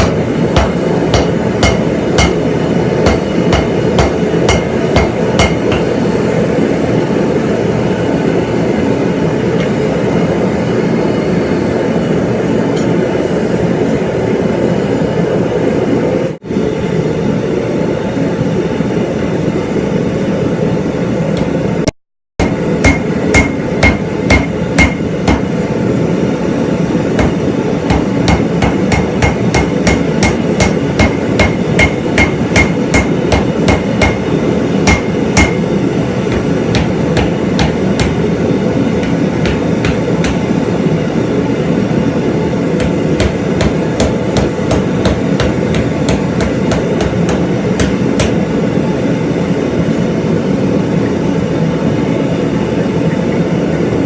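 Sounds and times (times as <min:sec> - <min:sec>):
hammer striking steel on anvil: 0:00.0 - 0:06.0, 0:22.4 - 0:25.6, 0:27.2 - 0:38.3, 0:39.0 - 0:40.6, 0:42.8 - 0:48.6.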